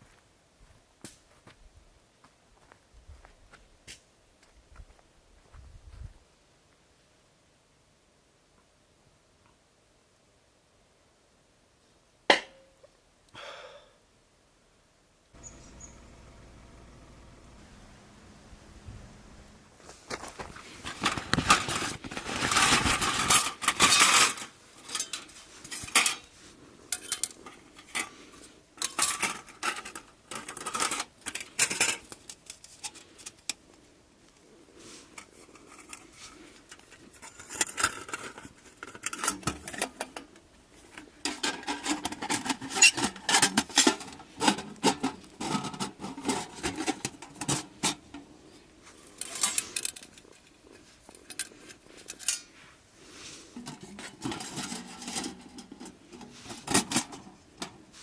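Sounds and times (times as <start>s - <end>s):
rustling: 15.4s - 58.0s.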